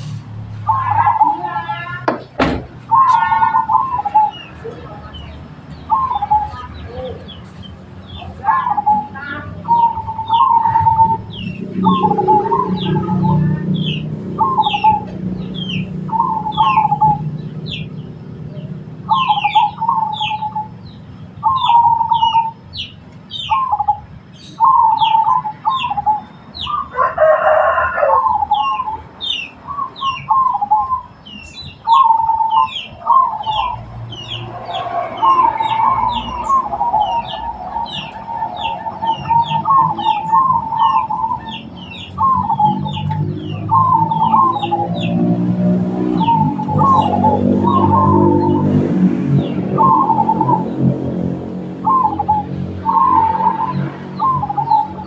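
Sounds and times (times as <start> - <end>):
doves cooing: 0.0 - 20.8, 21.4 - 22.8, 23.4 - 31.2, 31.8 - 55.0
harsh bird call: 0.0 - 51.2, 51.8 - 55.0.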